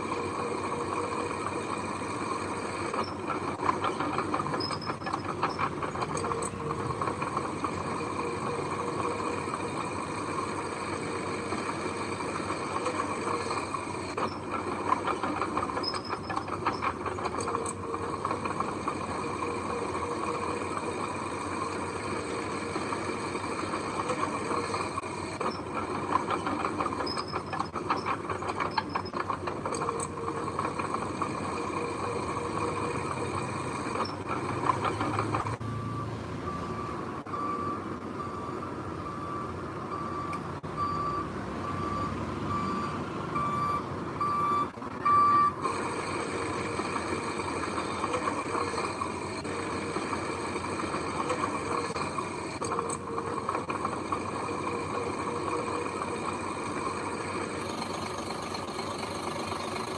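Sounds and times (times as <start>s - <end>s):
heavy machinery engine running: 0.0s - 59.9s
reversing alarm beeping: 35.5s - 45.7s.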